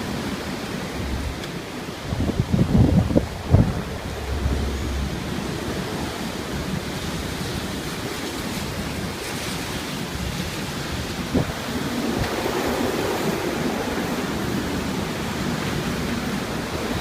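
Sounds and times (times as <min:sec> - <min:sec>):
strong wind roaring: 0:00.0 - 0:17.0
wind noise on microphone: 0:00.0 - 0:17.0
low bump: 0:00.9 - 0:01.5, 0:02.1 - 0:07.7.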